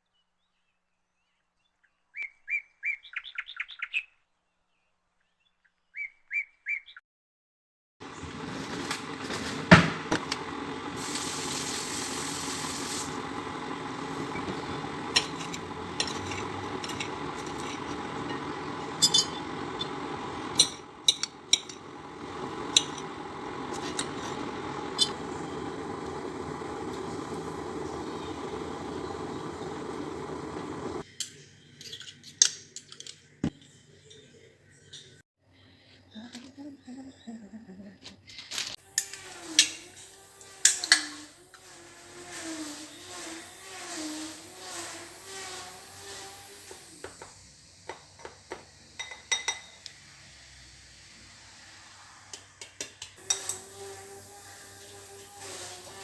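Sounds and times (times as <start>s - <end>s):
brief high hiss: 38.9s - 47.8s.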